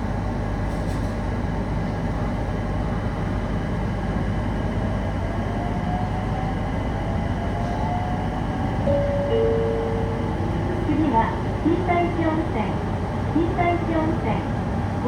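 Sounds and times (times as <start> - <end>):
train wheels rumbling on rails: 0.0 - 15.0
two held tones: 8.9 - 10.6.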